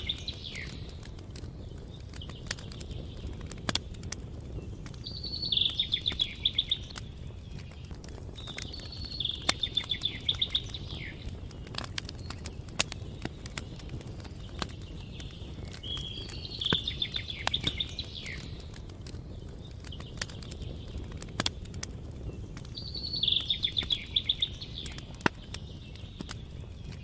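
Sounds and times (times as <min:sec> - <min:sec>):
songbird trilling: 0:00.0 - 0:00.9, 0:05.1 - 0:07.0, 0:08.4 - 0:11.3, 0:15.8 - 0:18.6, 0:22.8 - 0:25.1
campfire crackling: 0:00.0 - 0:27.0.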